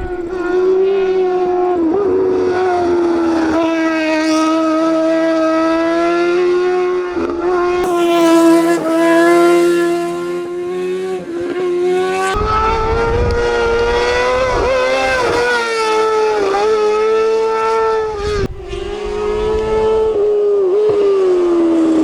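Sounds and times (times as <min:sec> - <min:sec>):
low rumble: 0:00.0 - 0:01.3
racing engine at high revs: 0:00.0 - 0:22.0.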